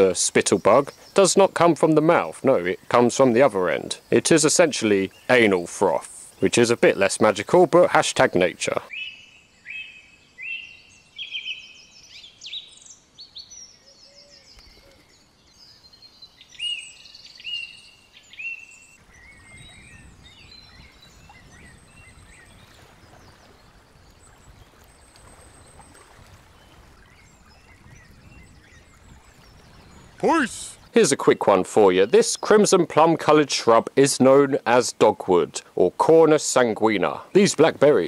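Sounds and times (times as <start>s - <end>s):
outdoor background: 0.0s - 38.0s
songbirds chirping: 0.0s - 38.0s.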